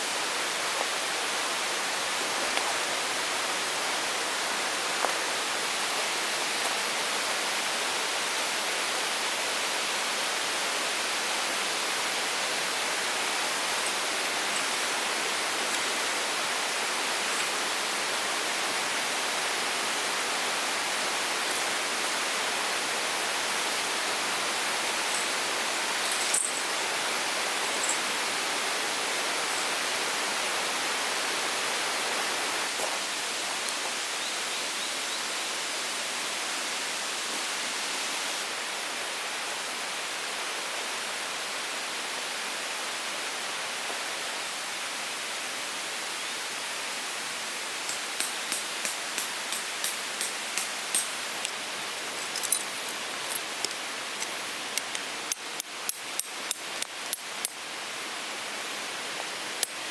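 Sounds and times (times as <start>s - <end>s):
tent pegs being hammered: 47.9s - 57.6s.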